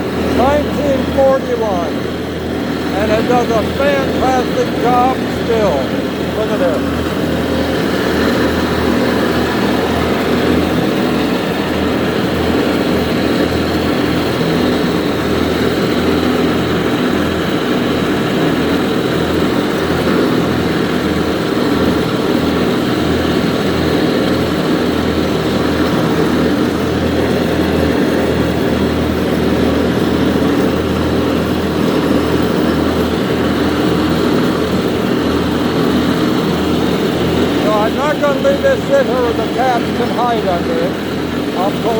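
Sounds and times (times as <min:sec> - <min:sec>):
tractor engine running: 0:00.0 - 0:20.8.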